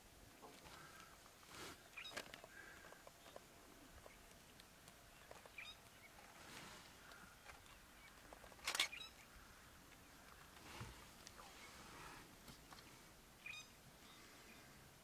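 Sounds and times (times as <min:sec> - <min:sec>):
faint bird chirps: 0:01.8 - 0:10.6, 0:13.4 - 0:14.9
cluster of clicks: 0:07.0 - 0:10.6.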